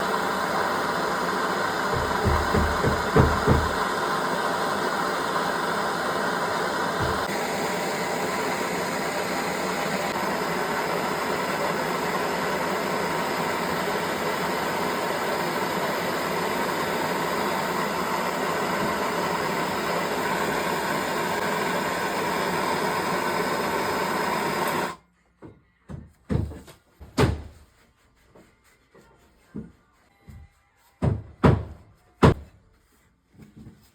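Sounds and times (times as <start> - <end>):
gas torch flame roaring: 0.0 - 25.0
low thumps: 1.9 - 3.8
sharp knocks and clicks: 1.9 - 3.8.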